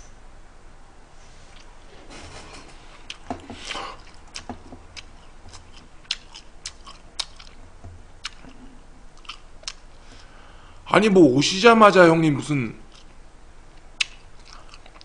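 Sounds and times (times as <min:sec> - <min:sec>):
man chewing food: 0:01.3 - 0:10.4, 0:12.9 - 0:15.0
wet mouth clicks and smacks: 0:03.1 - 0:07.6, 0:08.2 - 0:09.8, 0:13.8 - 0:15.0.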